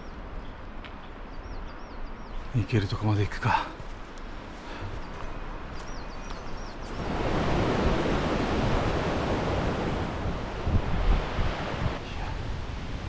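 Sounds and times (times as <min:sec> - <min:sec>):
faint bird chirps: 0:00.0 - 0:03.2, 0:04.7 - 0:07.0
wind gusting over microphone: 0:05.9 - 0:13.0.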